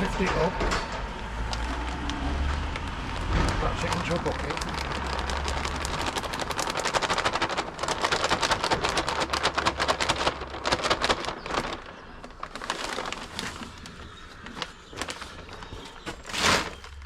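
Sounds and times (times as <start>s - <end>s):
cement powder pouring into bucket: 1.7s - 7.0s.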